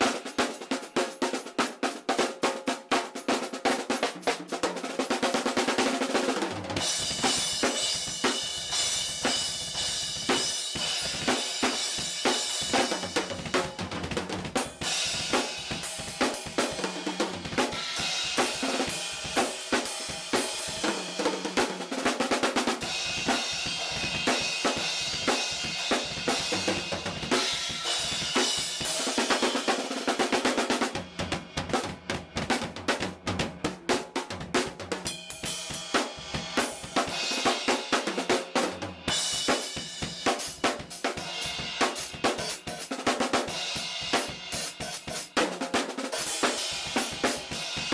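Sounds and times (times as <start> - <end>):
drum kit playing: 0.0 - 47.9.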